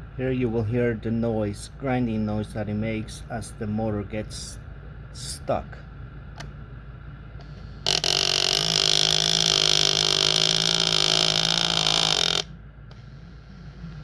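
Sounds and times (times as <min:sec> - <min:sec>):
motor grinding loudly: 0:07.4 - 0:14.0.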